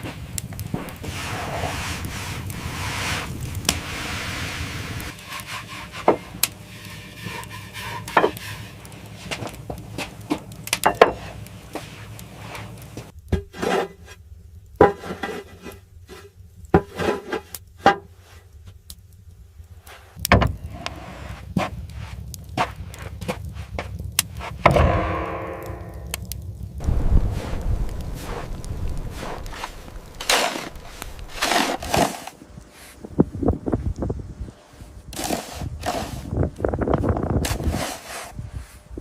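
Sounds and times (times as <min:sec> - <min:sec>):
steady rushing noise: 0:00.0 - 0:05.2, 0:24.6 - 0:32.2
hard objects knocking and scraping: 0:07.2 - 0:08.7.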